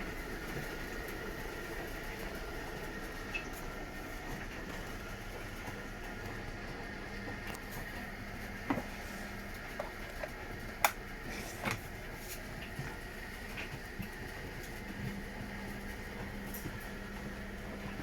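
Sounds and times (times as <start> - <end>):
washing machine humming: 0.0 - 18.0.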